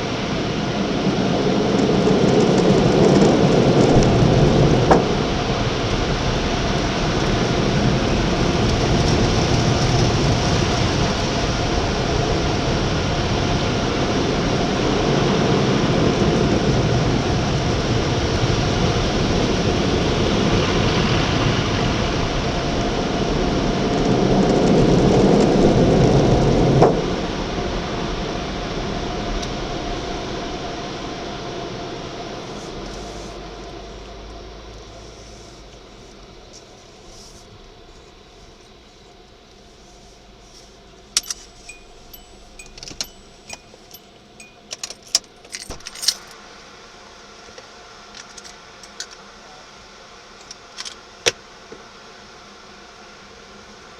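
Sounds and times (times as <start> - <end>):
car wash rushing noise: 0.0 - 41.7.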